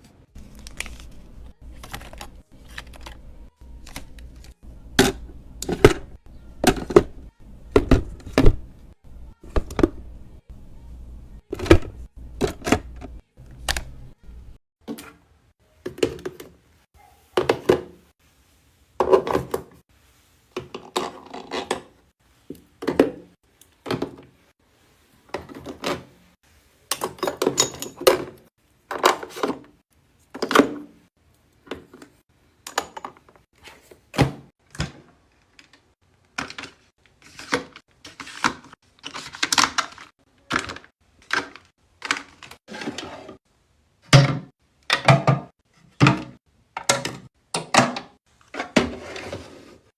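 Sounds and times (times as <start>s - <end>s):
bottles and jars knocking: 4.2s - 13.2s.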